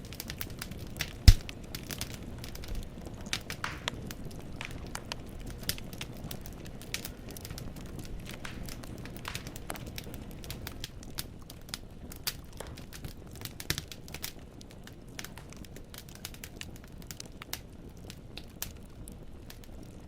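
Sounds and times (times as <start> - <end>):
crackles and pops of burning firewood: 0.0 - 20.0
low rumble of flames: 0.0 - 20.0.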